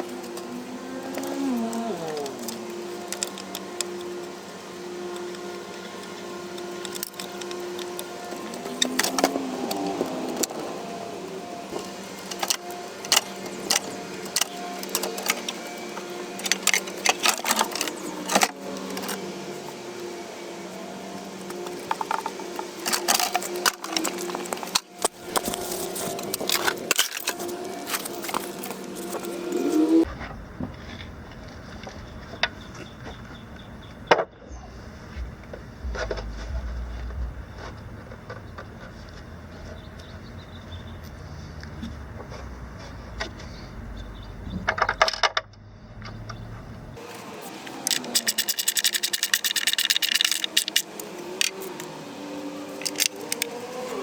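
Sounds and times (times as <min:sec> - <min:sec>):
faint steady hum: 0:00.0 - 0:41.5.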